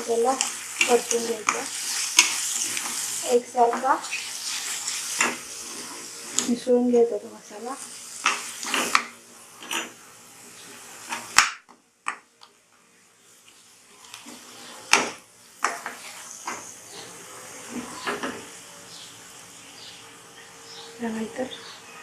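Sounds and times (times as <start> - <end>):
paste frying in oil: 0.0 - 12.3, 13.3 - 18.6
spoon scraping and knocking pan: 14.9 - 16.7.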